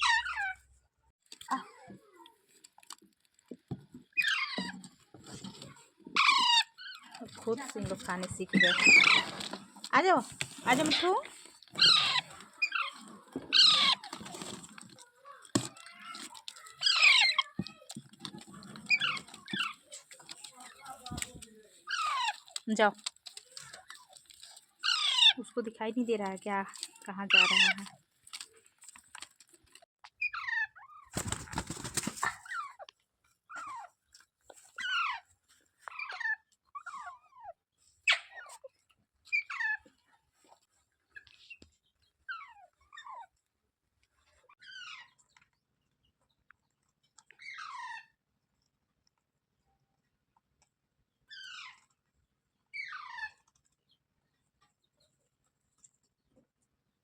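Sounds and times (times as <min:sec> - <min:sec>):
parakeet harsh calls: 0:00.0 - 0:00.6, 0:06.2 - 0:07.0, 0:08.6 - 0:09.4, 0:11.8 - 0:14.1, 0:16.7 - 0:17.5, 0:21.9 - 0:22.4, 0:24.8 - 0:25.4
parrot squawks: 0:00.0 - 0:00.6, 0:11.8 - 0:14.1, 0:24.8 - 0:25.4.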